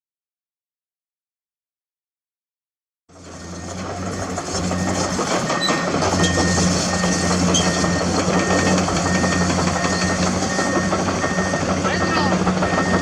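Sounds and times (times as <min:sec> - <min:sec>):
excavator diesel engine running: 0:03.1 - 0:13.0
warning alarm beeping: 0:03.2 - 0:13.0.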